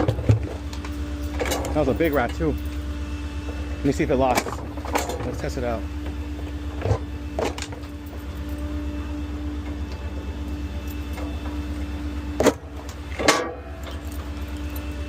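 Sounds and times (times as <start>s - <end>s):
garbage truck engine idling: 0.0s - 15.0s
metal bin lid clanking shut: 13.2s - 13.7s.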